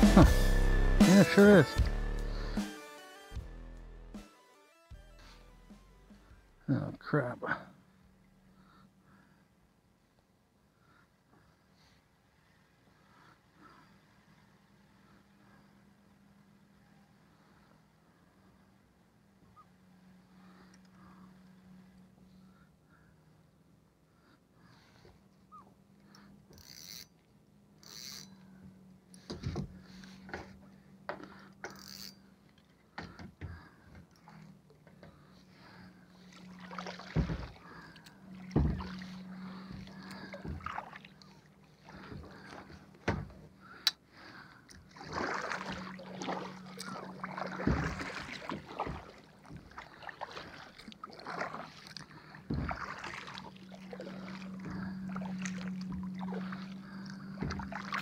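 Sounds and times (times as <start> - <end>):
water sloshing around kayak: 24.7 - 58.0
steady low hum: 34.0 - 58.0.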